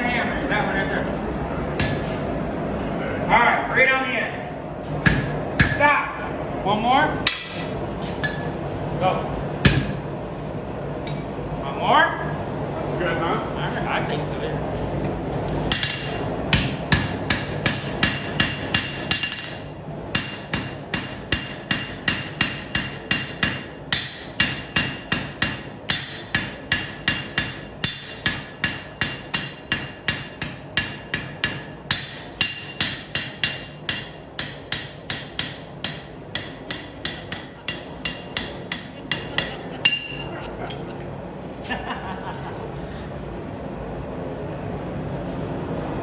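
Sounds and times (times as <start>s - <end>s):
hammer striking steel on anvil: 1.8s - 2.1s, 5.0s - 5.8s, 7.2s - 8.5s, 9.6s - 10.0s, 15.7s - 40.3s.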